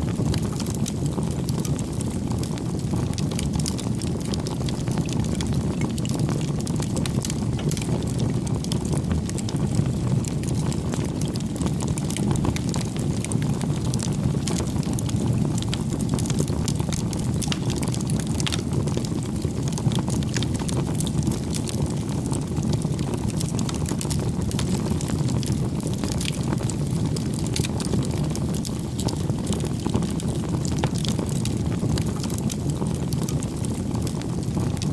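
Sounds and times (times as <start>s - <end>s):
crackles and pops of burning wood: 0.0s - 34.9s
wood fire burning: 0.0s - 34.9s.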